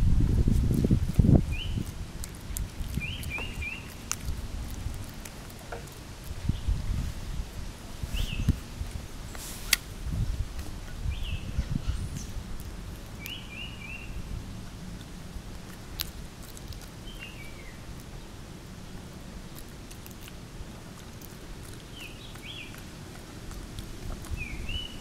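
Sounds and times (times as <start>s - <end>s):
low background rumble: 0.0s - 25.0s
high bird chirps: 3.0s - 4.1s.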